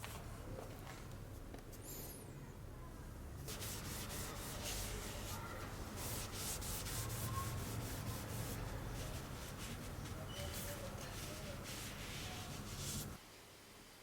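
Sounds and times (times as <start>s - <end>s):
abrasive rubbing strokes: 3.5s - 13.2s.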